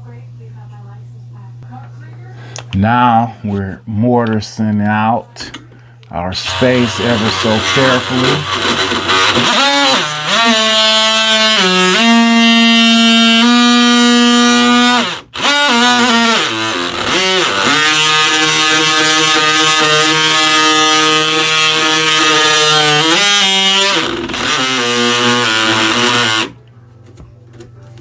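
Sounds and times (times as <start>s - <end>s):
oscillating multi-tool cutting wood: 6.4s - 26.6s.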